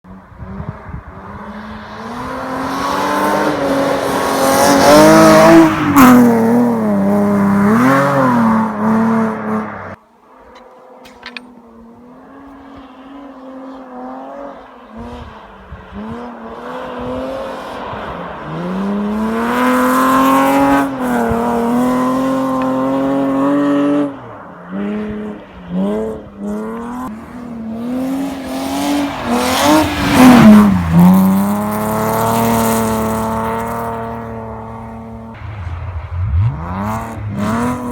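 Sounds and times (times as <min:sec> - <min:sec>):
rally car engine revving hard: 0:00.4 - 0:10.0, 0:18.5 - 0:37.9.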